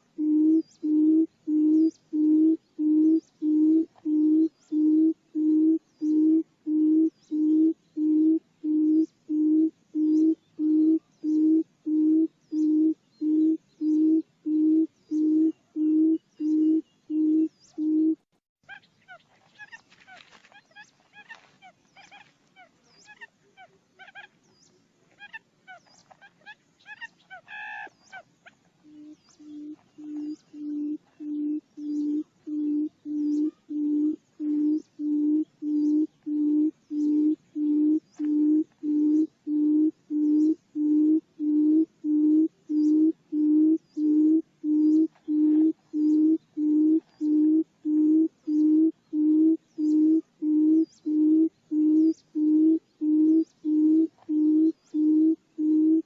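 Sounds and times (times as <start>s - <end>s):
bird low hoots: 0.0s - 24.4s, 25.1s - 56.0s
faint bird chirps: 0.0s - 56.0s.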